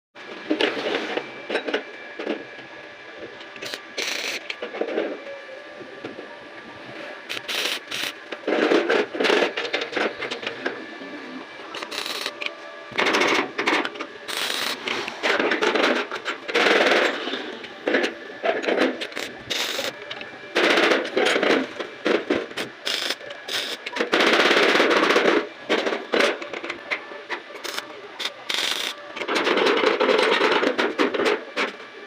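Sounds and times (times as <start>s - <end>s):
arc welding crackling: 3.3s - 5.2s, 6.9s - 31.8s.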